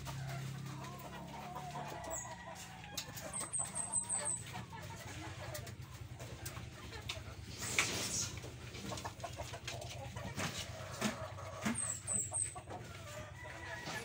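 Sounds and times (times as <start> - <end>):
birds chirping: 3.2 - 4.8.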